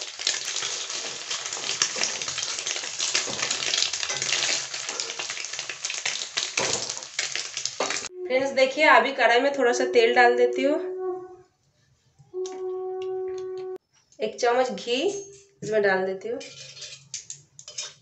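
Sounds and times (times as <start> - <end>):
cheese sizzling in hot oil: 0.0 - 8.1
metal spatula scraping a pan: 16.4 - 18.0.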